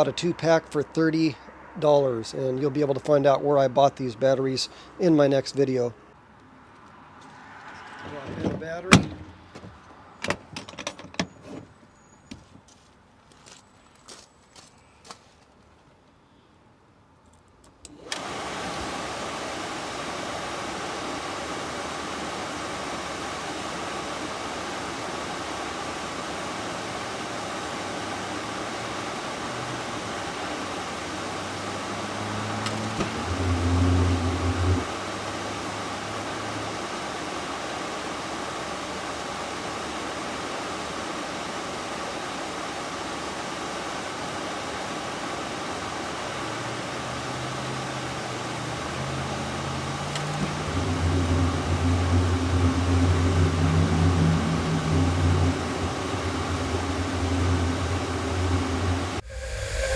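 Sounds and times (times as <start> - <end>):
furnace blower fan running: 17.9 - 59.9
low hum: 48.9 - 59.9.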